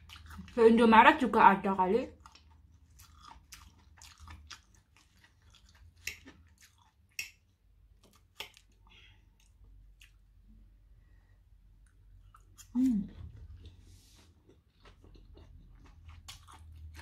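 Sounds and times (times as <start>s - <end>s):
quiet chewing with wet mouth clicks: 2.1s - 10.3s.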